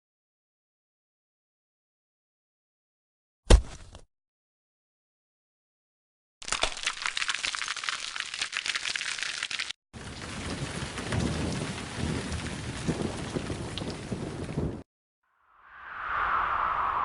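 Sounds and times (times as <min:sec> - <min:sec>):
raindrops pattering: 0:06.4 - 0:14.8
heavy rain: 0:10.0 - 0:14.8
low rumble of thunder: 0:10.0 - 0:14.8.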